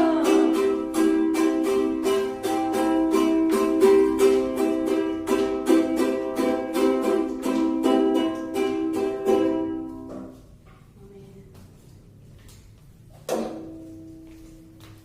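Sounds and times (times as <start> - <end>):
ukulele strummed: 0.0 - 10.4, 13.3 - 14.8.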